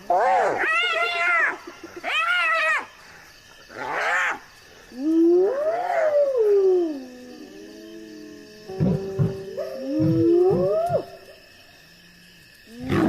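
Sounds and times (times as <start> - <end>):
hyena wailing call: 5.0 - 11.4.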